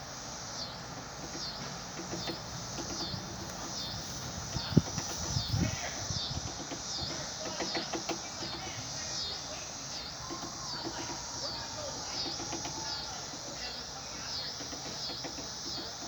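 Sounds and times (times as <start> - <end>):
pulsing insect call: 0.0 - 16.0
woodpecker tapping on wood: 1.0 - 9.1, 10.2 - 16.0.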